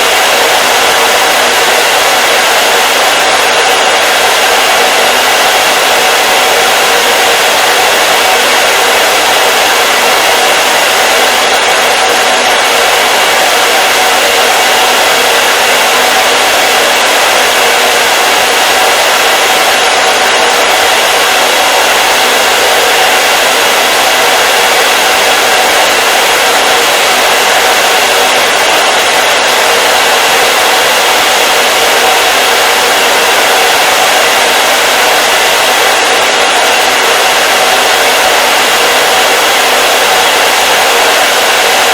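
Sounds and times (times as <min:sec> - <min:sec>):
hair dryer running: 0:00.0 - 0:41.9.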